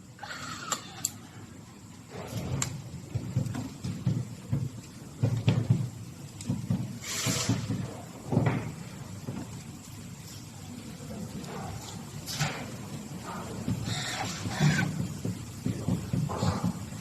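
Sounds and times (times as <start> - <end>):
short scraping hiss: 7.0 - 7.8.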